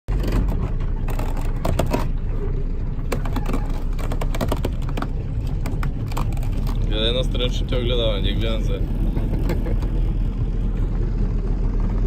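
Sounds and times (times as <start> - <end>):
speedboat engine rumbling: 0.1 - 12.0
clicks and knocks: 3.1 - 6.9.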